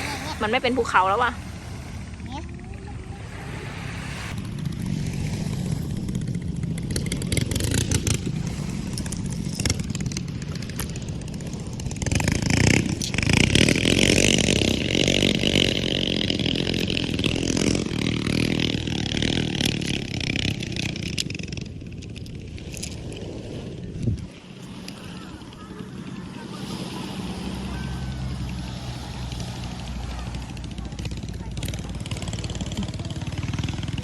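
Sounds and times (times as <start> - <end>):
motor engine running: 0.0 - 34.0.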